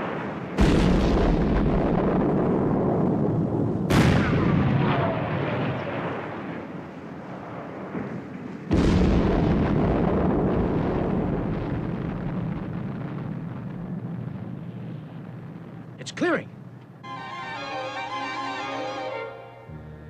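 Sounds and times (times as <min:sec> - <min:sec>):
blasting charges detonating in rock: 0:00.6 - 0:03.2, 0:03.9 - 0:06.4.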